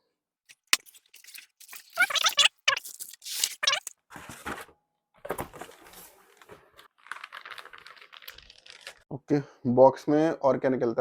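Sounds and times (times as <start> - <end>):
packaging tearing and rustling: 0.5 - 3.9, 6.8 - 9.0
short squeaky streaks: 0.5 - 3.9.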